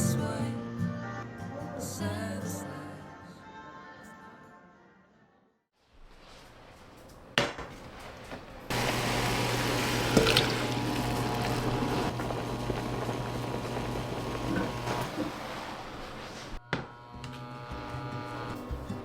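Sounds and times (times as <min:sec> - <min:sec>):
water splashing: 0:08.7 - 0:13.7
tap water running: 0:08.7 - 0:16.6.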